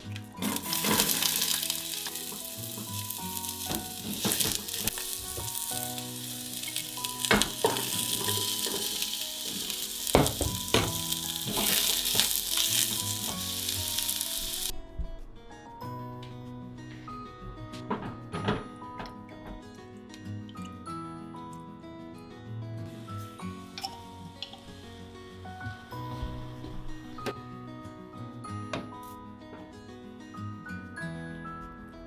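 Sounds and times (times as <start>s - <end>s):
food sizzling in a pot: 0.0s - 14.7s, 22.8s - 26.1s
utensil knocking and scraping pot: 0.4s - 5.7s, 6.6s - 12.4s.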